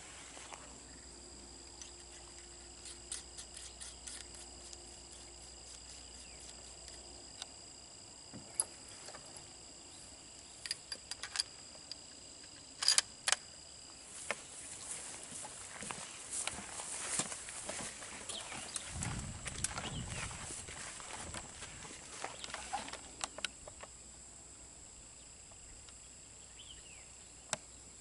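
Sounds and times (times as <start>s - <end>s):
rifle clicks and rattles: 10.6s - 13.5s.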